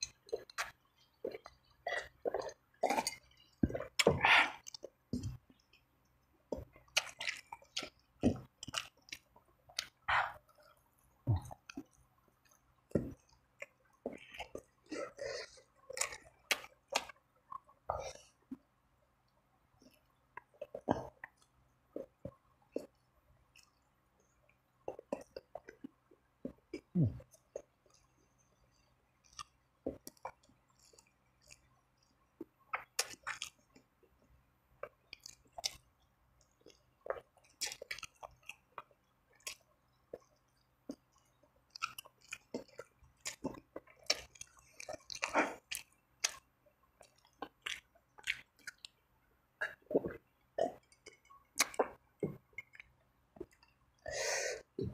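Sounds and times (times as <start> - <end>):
smacks and small crunches: 0.0 - 5.8, 6.5 - 10.7, 29.2 - 33.9, 34.8 - 49.0, 49.6 - 53.8
person chewing with wet mouth sounds: 0.0 - 18.6, 19.8 - 54.9.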